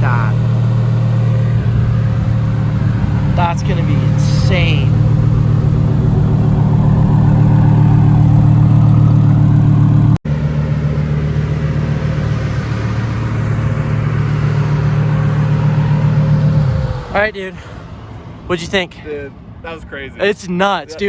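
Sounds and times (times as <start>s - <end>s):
sports car engine running: 0.0s - 18.5s.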